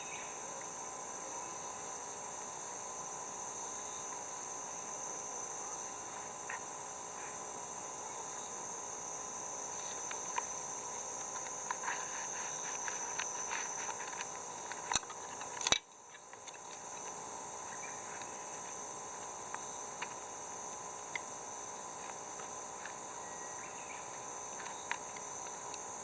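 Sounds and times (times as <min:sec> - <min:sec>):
insects buzzing: 0:00.0 - 0:26.0
small clicks: 0:11.2 - 0:17.2.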